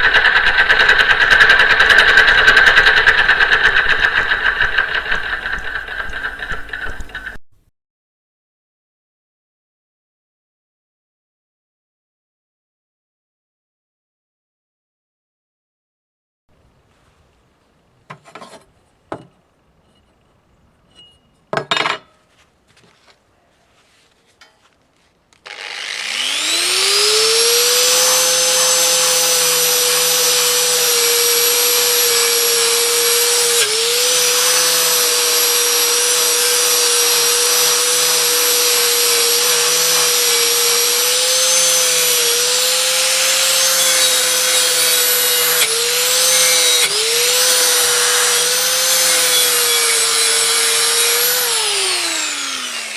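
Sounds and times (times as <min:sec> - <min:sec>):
electric grinder whining: 0:00.0 - 0:07.4, 0:25.4 - 0:52.9.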